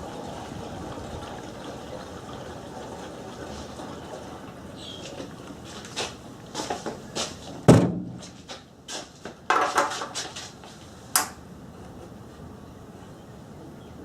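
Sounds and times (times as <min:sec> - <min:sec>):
objects being handled and set down: 0:09.5 - 0:10.6.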